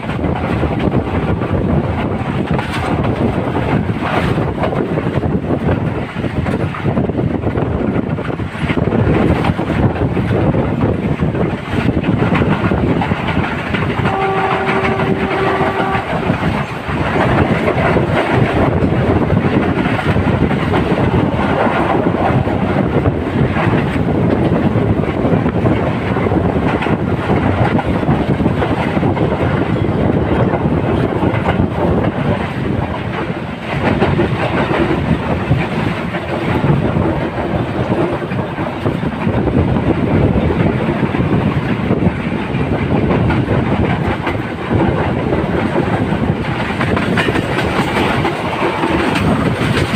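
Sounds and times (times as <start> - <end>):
train rumble and wheel clatter: 0.0 - 49.9
train horn: 14.0 - 16.4.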